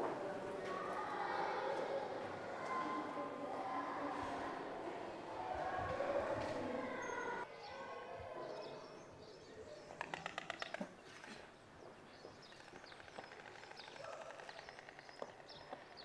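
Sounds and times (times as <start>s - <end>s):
small birds chirping: 6.8s - 16.0s
quick rattle of ticks: 12.6s - 16.0s.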